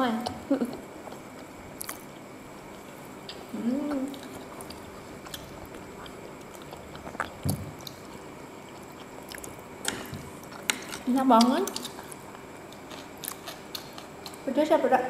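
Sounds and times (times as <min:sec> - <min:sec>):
close chewing of food: 0:00.2 - 0:14.5
short hummed vocal sound: 0:03.3 - 0:04.5.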